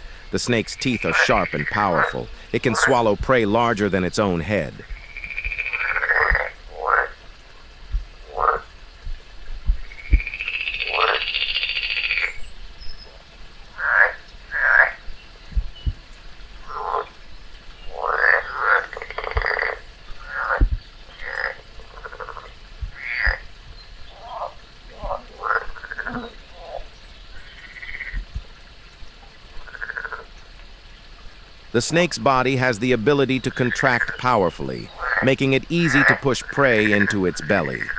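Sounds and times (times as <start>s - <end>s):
frog croaking: 0.0s - 7.2s, 8.2s - 8.8s, 9.8s - 12.4s, 13.7s - 15.1s, 16.6s - 17.2s, 17.8s - 23.5s, 24.1s - 28.3s, 29.6s - 30.4s, 31.8s - 37.9s.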